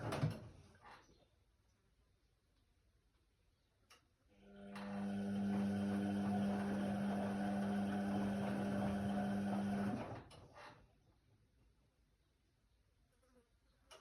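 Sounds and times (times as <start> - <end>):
washer-dryer humming: 4.6 - 10.2.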